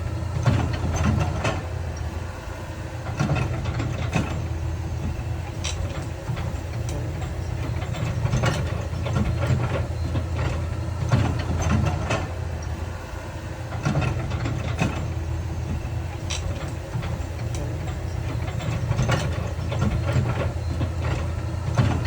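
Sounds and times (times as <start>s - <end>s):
heavy diesel machinery running: 0.0s - 22.0s.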